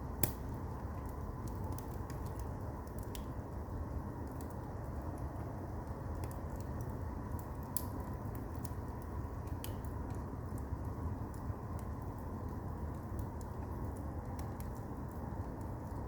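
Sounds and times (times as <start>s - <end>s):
firewood crackling and popping: 0.0s - 16.0s
low rumble of fire: 0.0s - 16.0s.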